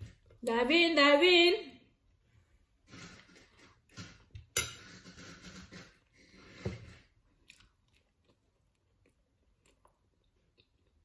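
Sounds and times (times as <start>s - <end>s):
person chewing: 6.3s - 11.0s.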